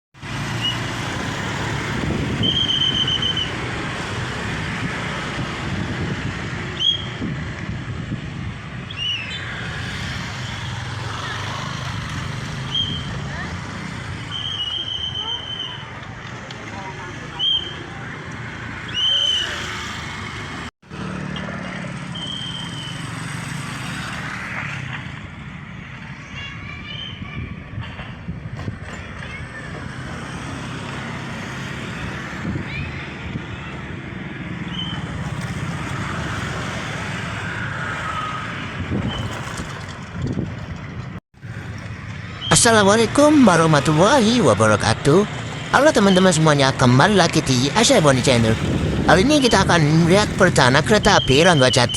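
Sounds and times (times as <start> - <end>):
road traffic: 0.2 - 51.9
vehicle engine humming: 27.8 - 51.9
high-pitched beeping tones: 49.4 - 51.9.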